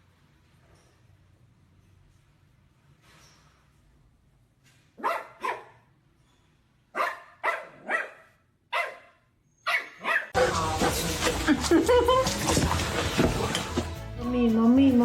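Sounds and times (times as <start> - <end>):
dog barking: 5.0 - 5.9, 6.9 - 11.0.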